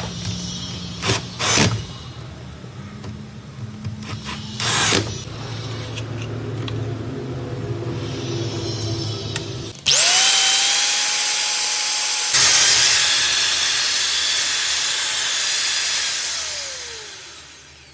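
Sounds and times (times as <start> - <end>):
angle grinder whining: 7.6 - 17.9.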